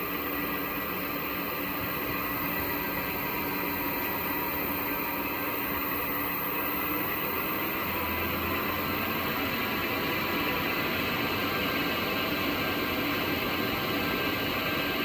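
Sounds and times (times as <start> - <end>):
inverter drive hiss and whine: 0.0 - 15.0.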